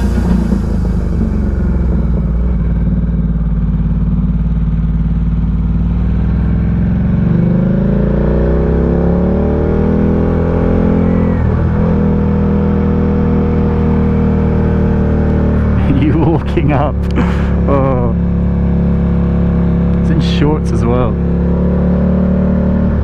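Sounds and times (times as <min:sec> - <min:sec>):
motorcycle engine pulling away: 0:00.0 - 0:16.0.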